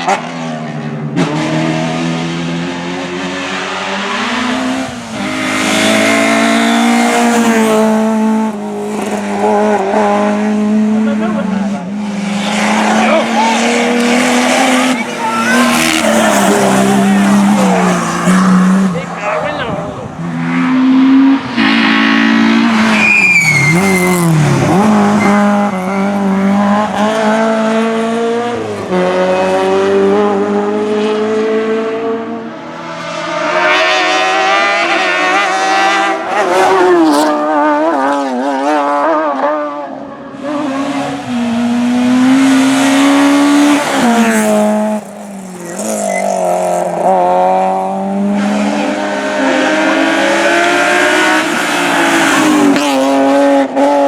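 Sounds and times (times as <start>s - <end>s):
race car engines revving: 0.0s - 54.0s
tyre squeal: 13.4s - 18.5s, 22.8s - 25.9s, 45.4s - 47.0s.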